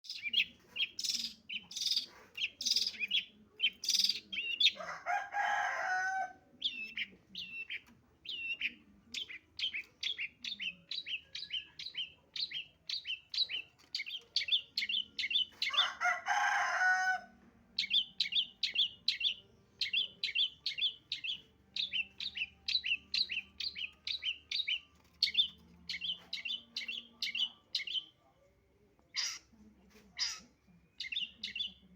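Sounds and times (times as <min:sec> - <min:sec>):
bird sharp high chirps: 0:00.0 - 0:04.7
bird rasping chatter: 0:29.1 - 0:29.5, 0:30.2 - 0:31.7.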